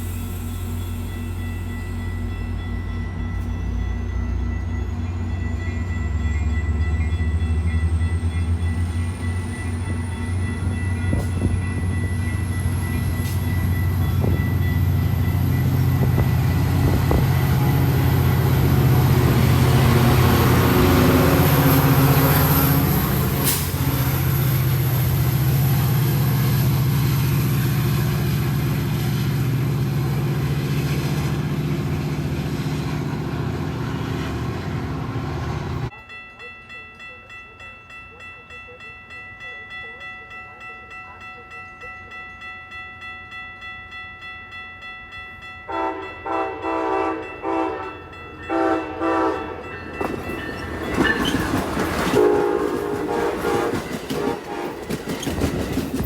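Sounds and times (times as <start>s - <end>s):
train wheels on rails: 0.0s - 35.9s, 47.4s - 56.0s
diesel train engine rumble: 0.0s - 36.1s, 45.8s - 56.0s.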